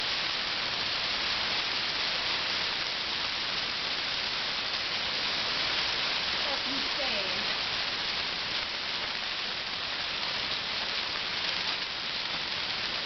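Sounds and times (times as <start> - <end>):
heavy hail falling: 5.3 - 13.0.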